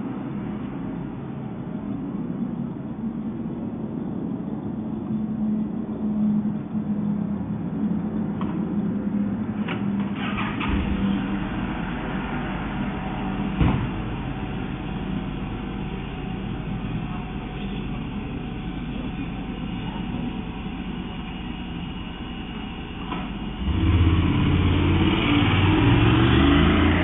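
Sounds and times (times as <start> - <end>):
vehicle engine and street noise: 0.0 - 27.0
vehicle engine revving: 23.1 - 27.0.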